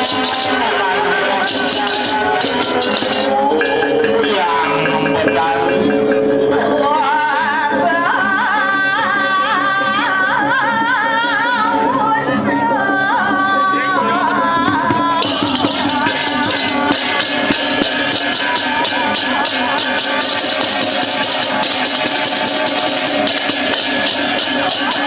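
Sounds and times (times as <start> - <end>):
crisp metallic strikes: 0.0 - 6.5, 14.8 - 25.0
ornamented melody line: 0.0 - 7.5.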